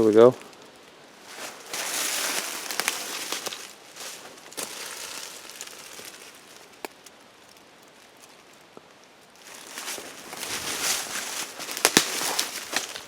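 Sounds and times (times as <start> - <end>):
brush rustling and crackling: 0.0 - 13.0
twigs snapping: 0.4 - 13.0.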